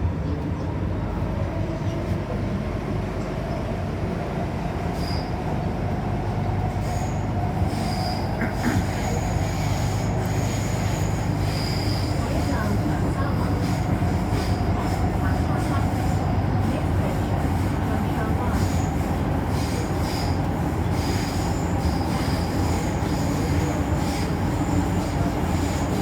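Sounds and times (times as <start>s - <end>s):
train wheels rumbling: 0.0s - 26.0s
high-pitched wheel squeals: 5.0s - 5.4s, 6.9s - 8.4s.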